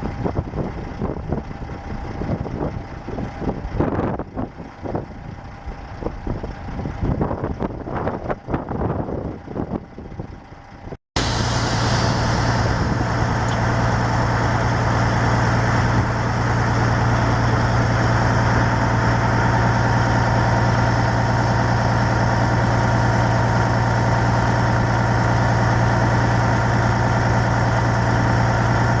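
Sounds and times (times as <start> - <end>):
truck engine humming: 11.2 - 29.0.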